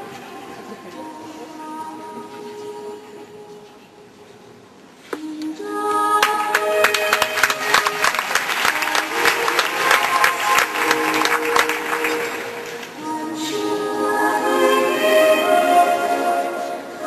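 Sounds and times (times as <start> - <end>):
audience applauding: 6.2 - 13.0
music playing: 6.3 - 17.0.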